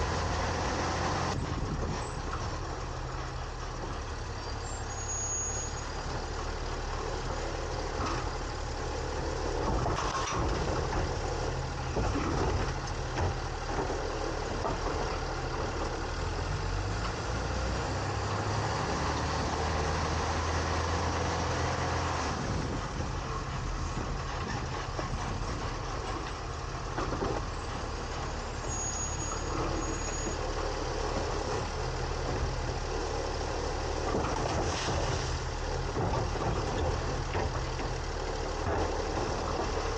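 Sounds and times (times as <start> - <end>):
garbage truck engine running: 0.0 - 39.9
knocks and clatter: 34.0 - 39.9.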